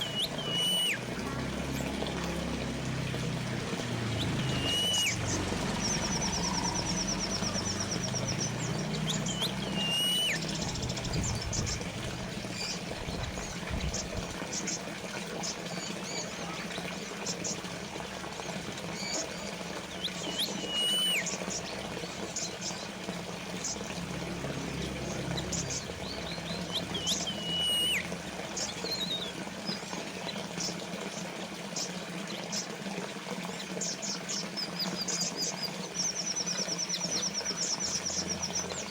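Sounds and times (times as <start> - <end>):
high bird trill: 0.0 - 1.1, 4.1 - 12.0, 20.0 - 21.4, 24.7 - 29.3
birds chirping: 0.0 - 32.8, 33.4 - 38.9
water fountain trickling: 0.0 - 38.9.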